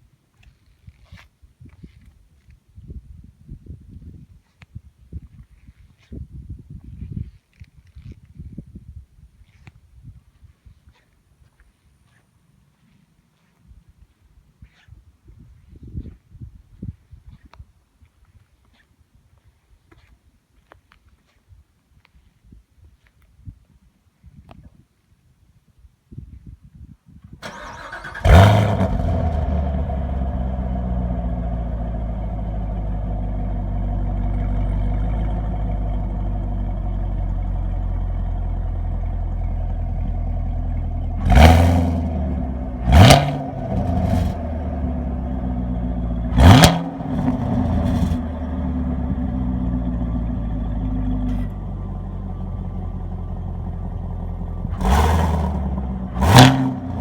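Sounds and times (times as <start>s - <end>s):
car engine starting and idling: 27.4s - 57.0s
engine throttle blips: 27.4s - 57.0s.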